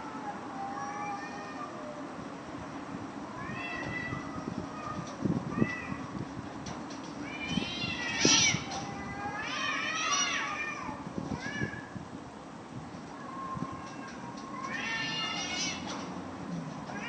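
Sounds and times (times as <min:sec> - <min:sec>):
cats yowling in a fight: 0:00.0 - 0:02.1, 0:03.2 - 0:06.2, 0:07.2 - 0:12.0, 0:13.0 - 0:16.2.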